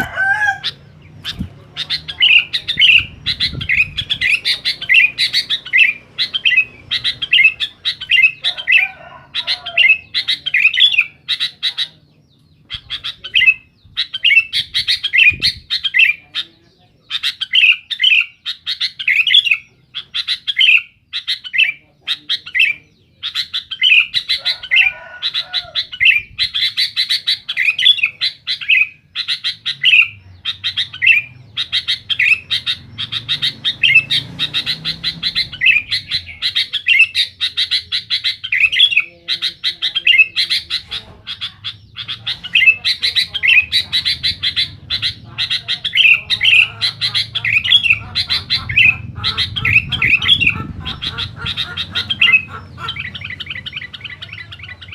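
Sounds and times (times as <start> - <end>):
bulbul chirping song: 0.0 - 54.9.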